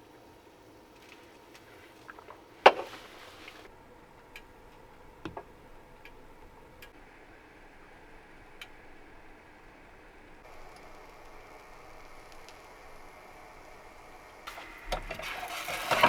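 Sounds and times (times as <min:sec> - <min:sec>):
faint ticks: 0:10.4 - 0:13.1.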